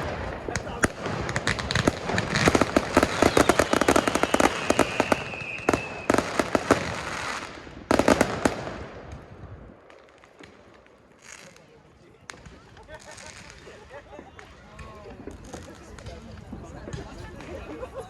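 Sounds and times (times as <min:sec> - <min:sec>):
fireworks bangs: 0:00.0 - 0:18.0
falling firework whistle: 0:02.4 - 0:06.5.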